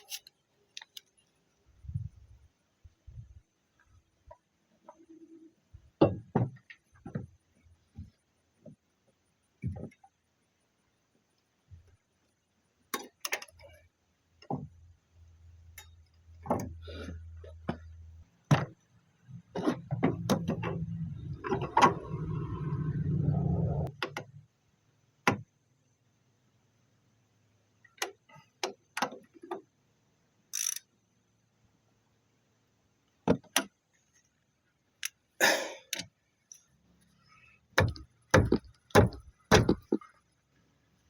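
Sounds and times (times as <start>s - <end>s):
tools and parts clicking: 0.0s - 1.4s, 15.7s - 16.4s, 30.5s - 31.0s
low hum: 20.8s - 23.9s.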